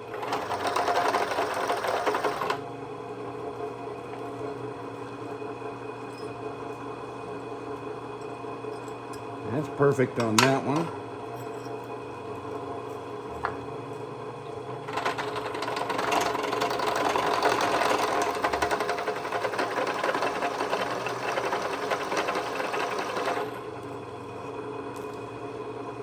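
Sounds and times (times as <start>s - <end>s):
drill press motor hum: 0.0s - 2.7s, 14.5s - 26.0s.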